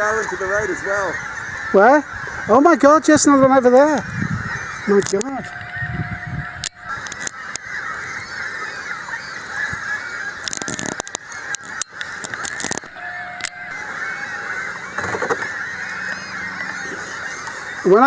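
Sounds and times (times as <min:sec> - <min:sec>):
gulls calling: 0:00.0 - 0:18.0
sharp clicks: 0:04.9 - 0:05.7, 0:06.6 - 0:07.7, 0:10.4 - 0:13.6.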